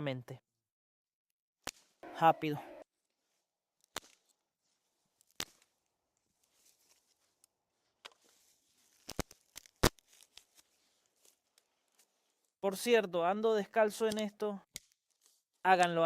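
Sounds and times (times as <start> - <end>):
twigs snapping: 1.6 - 2.0, 3.8 - 4.4, 5.1 - 12.5, 14.1 - 15.4
faint rustle: 6.2 - 7.5.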